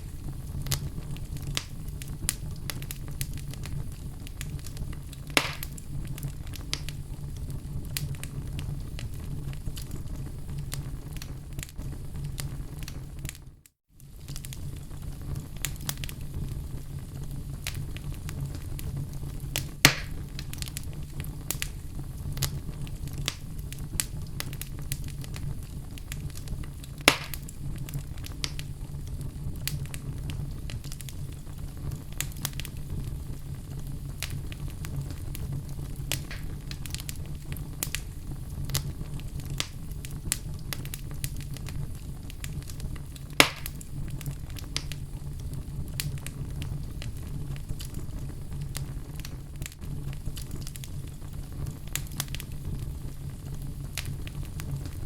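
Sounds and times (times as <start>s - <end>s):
fire crackling: 0.0s - 55.0s.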